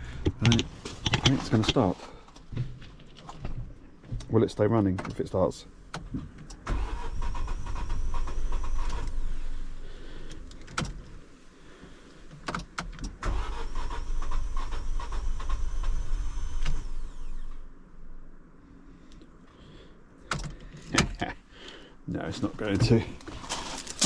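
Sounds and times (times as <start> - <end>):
engine cranked by starter motor: 6.4 - 9.6, 13.0 - 17.5.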